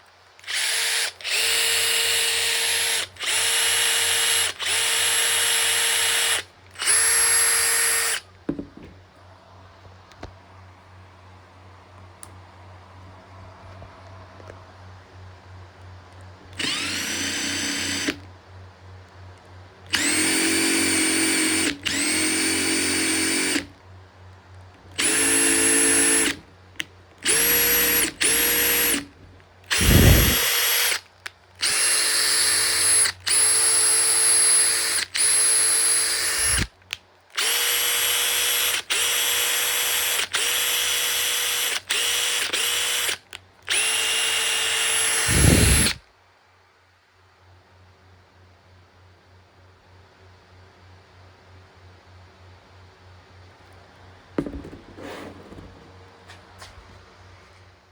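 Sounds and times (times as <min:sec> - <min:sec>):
impact driver motor whine: 0:00.4 - 0:08.9, 0:16.6 - 0:18.2, 0:19.9 - 0:23.7, 0:24.9 - 0:26.4, 0:27.2 - 0:31.0, 0:31.6 - 0:36.7, 0:37.4 - 0:46.0, 0:54.4 - 0:55.9.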